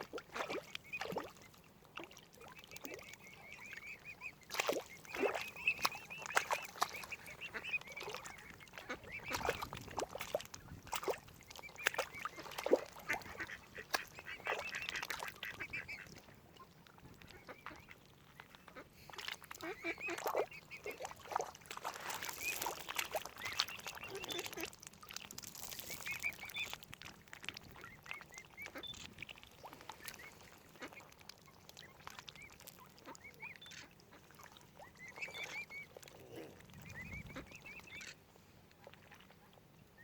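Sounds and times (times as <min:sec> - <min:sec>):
waterfowl quacking and honking: 0:02.1 - 0:10.0, 0:11.0 - 0:16.3, 0:19.5 - 0:21.4, 0:22.3 - 0:24.7, 0:27.7 - 0:31.2, 0:32.0 - 0:38.2.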